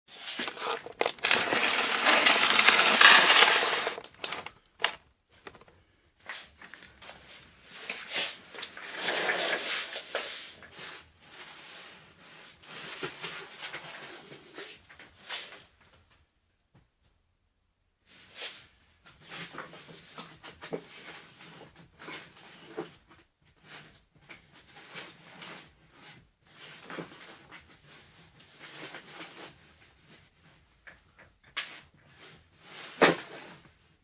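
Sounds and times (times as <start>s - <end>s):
crunching and rustling handling: 0.1s - 5.7s.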